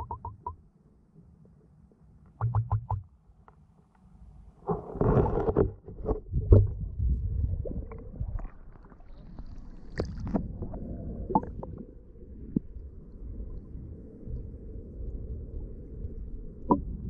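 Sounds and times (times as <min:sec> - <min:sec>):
muffled underwater water rumbling: 0:04.6 - 0:17.0.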